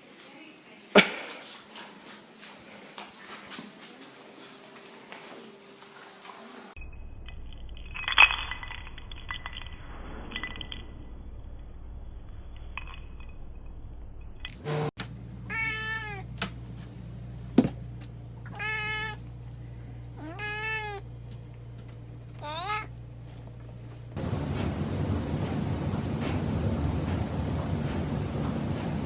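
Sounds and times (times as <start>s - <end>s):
cat meowing: 15.5s - 16.2s, 18.5s - 19.2s, 20.2s - 21.0s, 22.4s - 22.9s.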